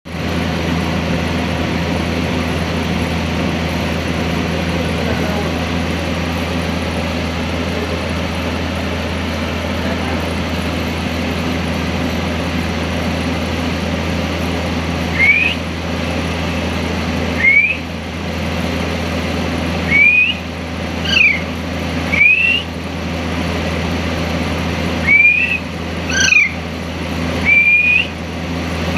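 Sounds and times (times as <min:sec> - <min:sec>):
air cooler humming: 0:00.1 - 0:28.9
parrot whistling calls: 0:15.1 - 0:15.6, 0:17.4 - 0:17.9, 0:19.9 - 0:22.7, 0:25.0 - 0:26.7, 0:27.4 - 0:28.2.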